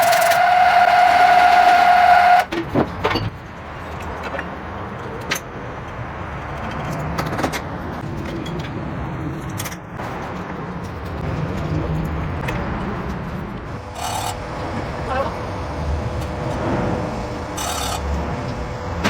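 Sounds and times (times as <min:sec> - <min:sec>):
low mechanical hum: 0:00.0 - 0:02.5, 0:12.0 - 0:19.0
machine tool whine: 0:00.0 - 0:02.5, 0:13.7 - 0:19.0.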